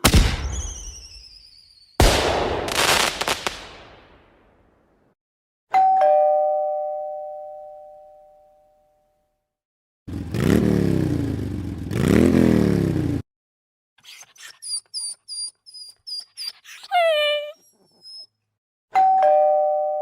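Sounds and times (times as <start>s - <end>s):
two-tone doorbell chime: 5.7s - 9.2s, 19.0s - 20.0s
vehicle engine revving: 10.1s - 13.2s.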